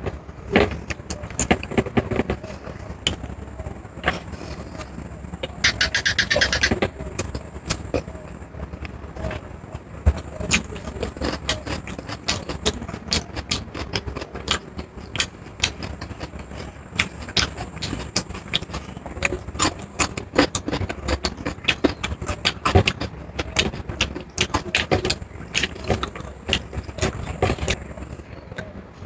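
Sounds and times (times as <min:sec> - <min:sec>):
person chewing and smacking: 0:10.2 - 0:27.8.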